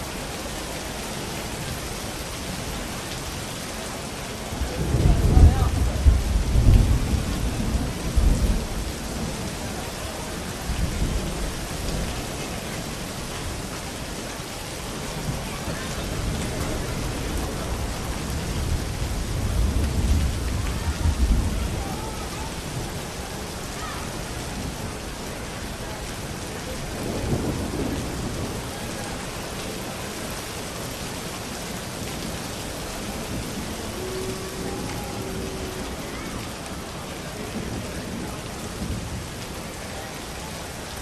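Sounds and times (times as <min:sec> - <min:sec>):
steady rain: 0:00.0 - 0:41.0
rolling thunder: 0:04.5 - 0:12.6, 0:15.0 - 0:23.4, 0:25.8 - 0:30.2.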